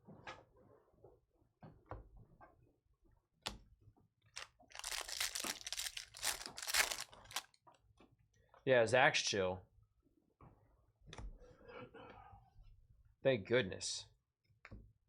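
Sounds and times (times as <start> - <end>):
foil wrapper tearing and crinkling: 4.4 - 7.6.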